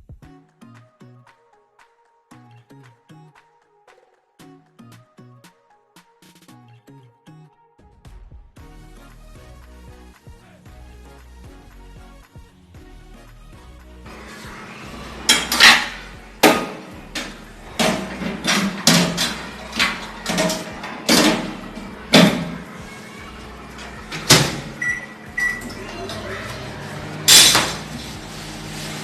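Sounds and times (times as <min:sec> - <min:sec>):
hard objects clunking: 0:14.1 - 0:28.3
short high electronic beeps: 0:24.8 - 0:25.8.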